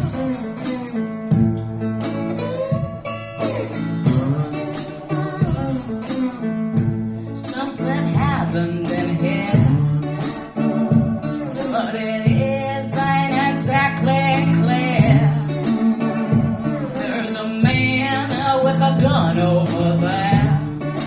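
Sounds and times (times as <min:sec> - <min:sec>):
sharp percussion hits: 0:00.0 - 0:20.6
guitar playing: 0:00.0 - 0:21.0.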